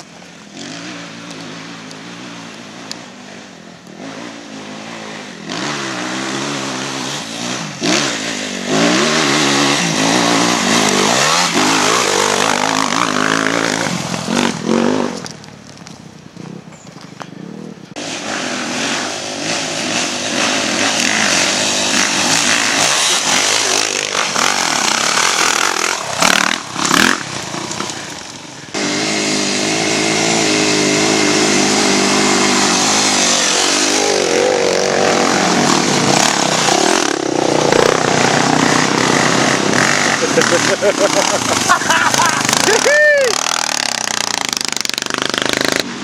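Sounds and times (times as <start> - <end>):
dirt bike engines running: 0.0 - 46.0
rushing noise: 17.9 - 46.0.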